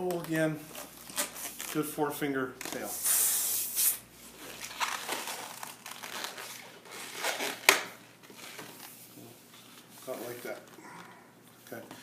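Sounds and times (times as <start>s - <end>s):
balloon rubbing and crinkling: 2.6s - 10.8s
air hissing: 3.0s - 4.0s.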